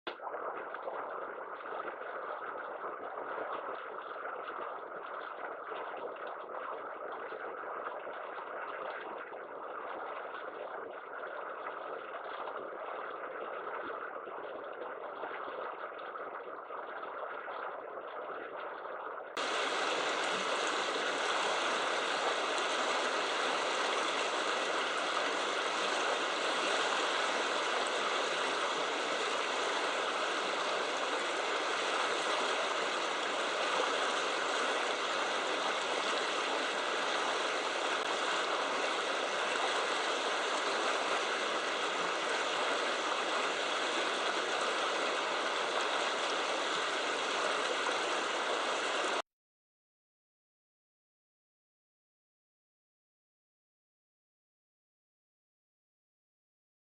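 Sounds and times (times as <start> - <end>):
river water rushing: 19.4 - 49.2.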